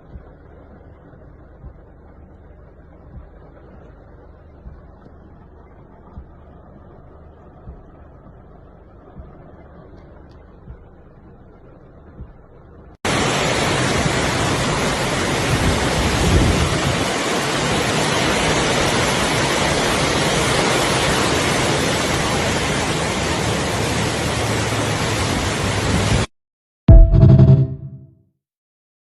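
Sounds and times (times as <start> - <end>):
low rumble: 0.0 - 16.8, 26.9 - 28.0
heavy rain pouring: 0.0 - 26.3.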